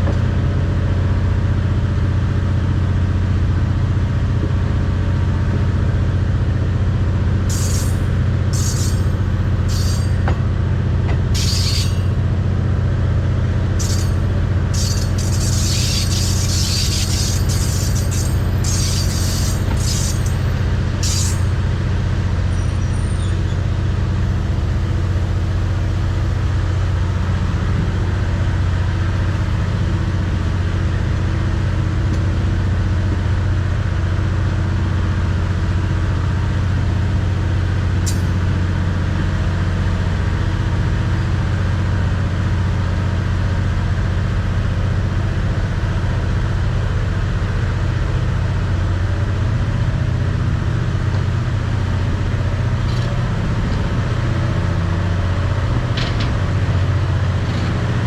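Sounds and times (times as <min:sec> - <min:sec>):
vehicle engine droning: 0:00.0 - 0:58.0.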